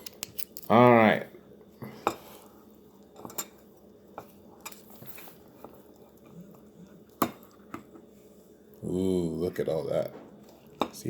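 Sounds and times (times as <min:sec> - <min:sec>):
dishes and cutlery clicking: 0:03.2 - 0:04.8.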